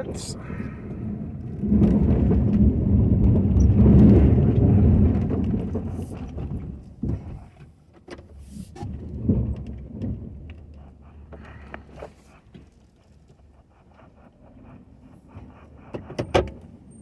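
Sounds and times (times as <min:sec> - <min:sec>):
truck engine rumble: 0:00.0 - 0:07.2.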